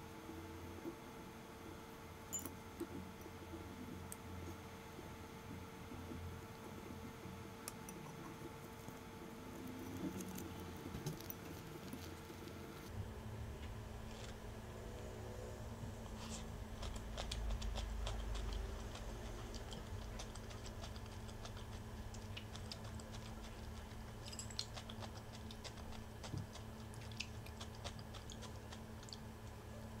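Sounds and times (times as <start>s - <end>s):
low hum: 1.6s - 24.6s
crunchy chewing: 7.6s - 12.9s, 16.1s - 30.0s.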